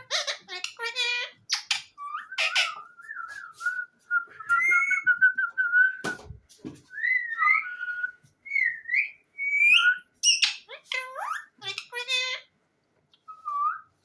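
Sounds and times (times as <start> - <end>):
parrot whistling: 0.1 - 5.9, 7.0 - 12.3.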